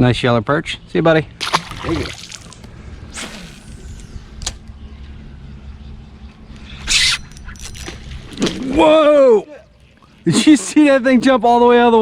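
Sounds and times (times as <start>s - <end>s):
boat hum: 1.2s - 12.0s
fish splashing: 1.4s - 3.9s.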